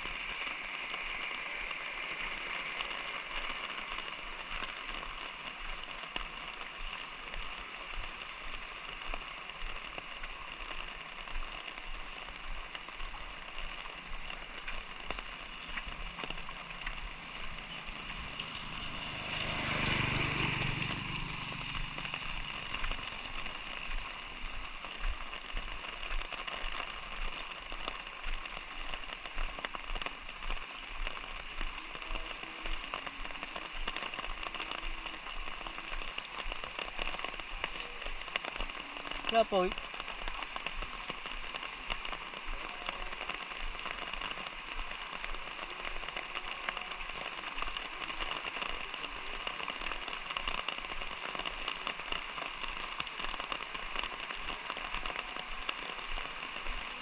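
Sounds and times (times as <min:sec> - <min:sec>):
light rain falling: 0:00.0 - 0:57.0
raindrops ticking: 0:00.0 - 0:57.0
vehicle passing: 0:16.1 - 0:23.6.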